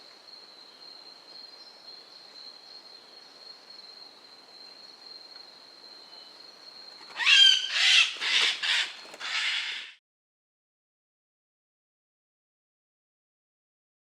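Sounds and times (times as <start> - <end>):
bird screeching calls: 7.1 - 10.0.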